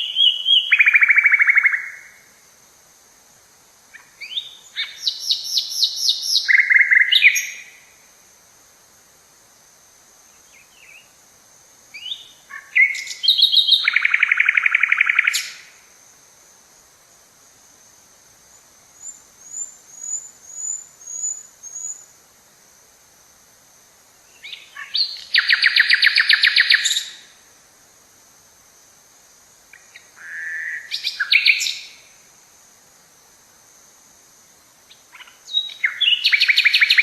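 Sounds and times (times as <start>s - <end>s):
songbird trilling song: 0.0s - 2.3s, 3.9s - 8.0s, 10.3s - 11.2s, 11.9s - 15.8s, 18.5s - 22.1s, 24.2s - 27.4s, 29.7s - 32.2s, 34.9s - 37.0s.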